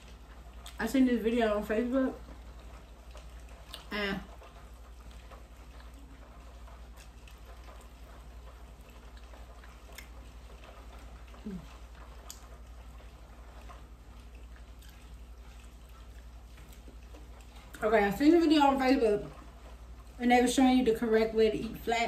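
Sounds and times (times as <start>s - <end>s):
wet chewing and lip-smacking: 0.0s - 1.0s, 2.1s - 20.2s
low steady hum: 0.0s - 22.0s.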